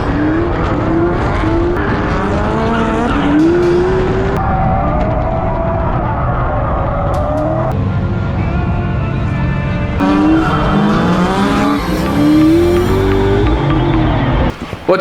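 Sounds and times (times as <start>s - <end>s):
car engines revving: 0.0s - 15.0s
tires squealing: 0.0s - 15.0s.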